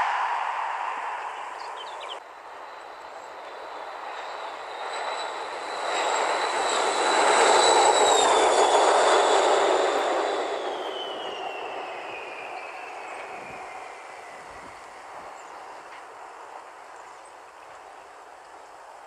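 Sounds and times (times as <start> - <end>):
train rushing past: 0.0 - 2.2
high train whine: 0.0 - 19.0.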